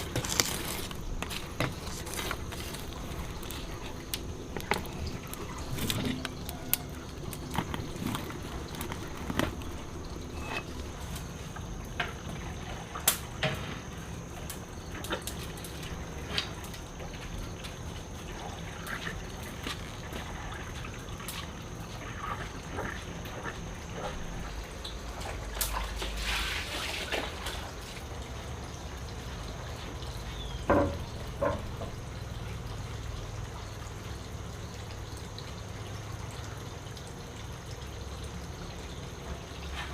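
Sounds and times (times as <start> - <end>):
water trickling and dripping: 0.0 - 39.9.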